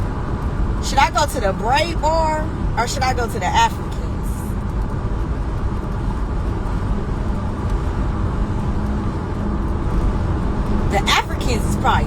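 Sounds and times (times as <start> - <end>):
car engine rumble: 0.0 - 12.0
faint steady hum: 0.0 - 12.0
road noise: 0.0 - 12.0.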